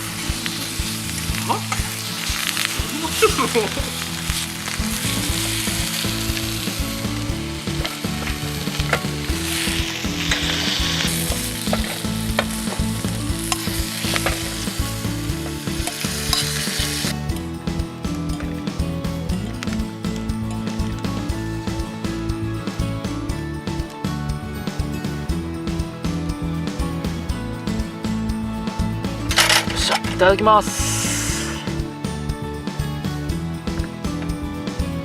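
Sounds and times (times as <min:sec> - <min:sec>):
food sizzling in a pan: 0:00.0 - 0:17.2, 0:29.7 - 0:31.8
background music: 0:00.0 - 0:35.0.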